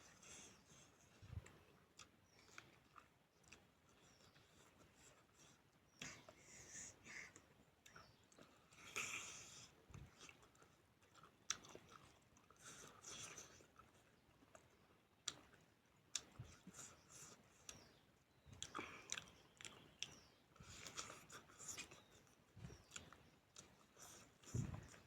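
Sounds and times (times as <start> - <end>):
person chewing: 1.4 - 5.2, 7.8 - 17.9, 18.6 - 25.0
soft low thuds: 24.5 - 25.0.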